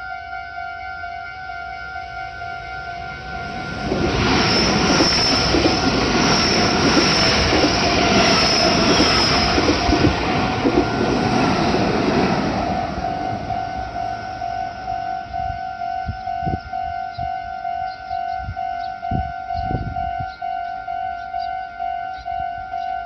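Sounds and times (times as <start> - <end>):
crossing warning bell dinging: 0.0 - 23.0
train running noise: 1.4 - 23.0
high squeals: 3.2 - 11.8.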